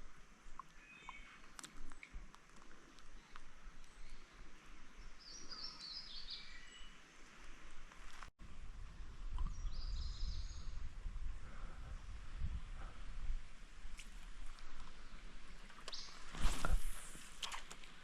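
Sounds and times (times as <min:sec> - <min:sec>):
songbird singing falling notes: 0:00.8 - 0:02.2, 0:09.3 - 0:10.7, 0:15.8 - 0:16.2.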